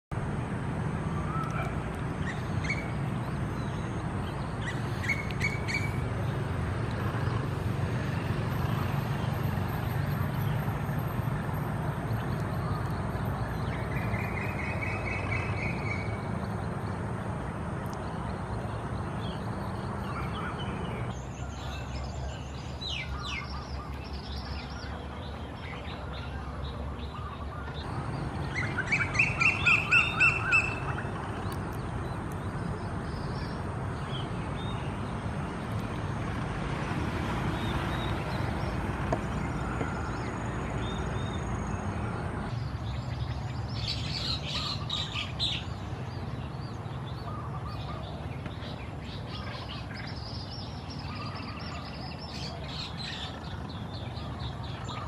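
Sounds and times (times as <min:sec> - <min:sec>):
bird chirps: 0:01.1 - 0:06.4, 0:19.1 - 0:34.9
bird trill: 0:04.6 - 0:06.0, 0:28.4 - 0:31.5.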